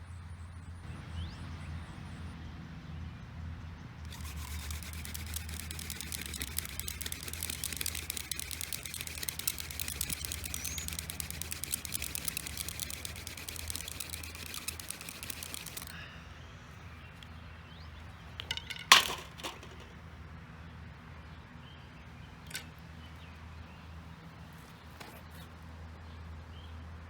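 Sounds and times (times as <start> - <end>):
hand drill scratchy friction: 4.1 - 16.0
sharp clicks or knocks: 18.4 - 19.9.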